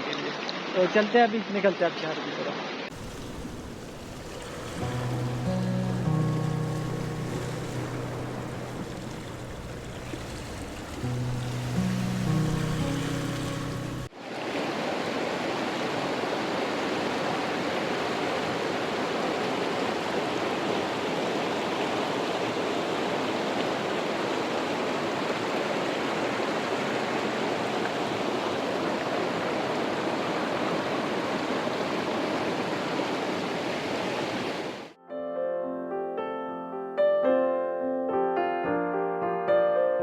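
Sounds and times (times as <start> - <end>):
fast-flowing water rushing: 0.0 - 35.0
background music: 4.8 - 14.1.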